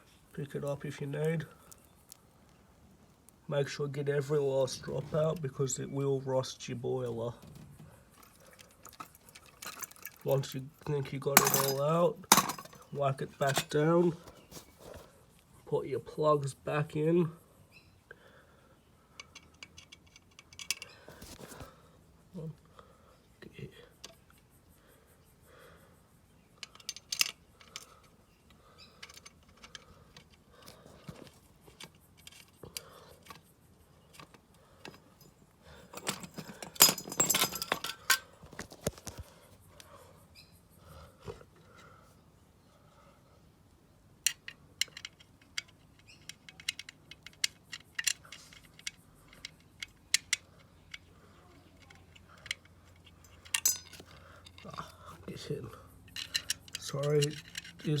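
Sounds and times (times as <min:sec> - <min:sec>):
small metal parts clinking: 0:07.5 - 0:15.1, 0:19.1 - 0:21.7, 0:26.5 - 0:39.3, 0:44.2 - 0:58.0.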